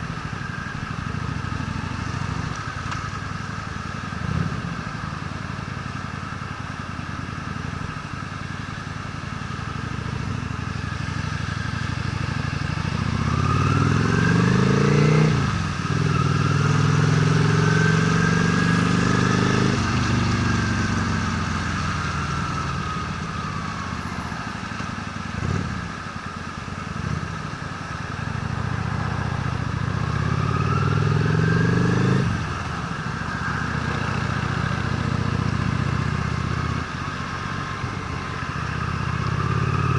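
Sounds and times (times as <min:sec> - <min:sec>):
motorcycle engine accelerating: 0:09.4 - 0:39.9.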